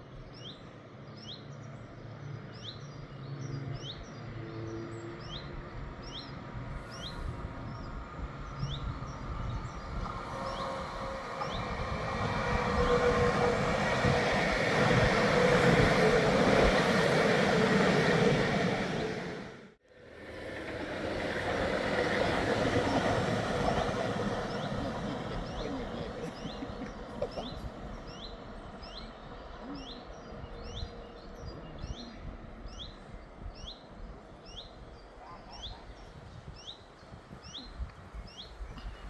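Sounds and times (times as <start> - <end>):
train rumbling past: 1.6 - 38.8.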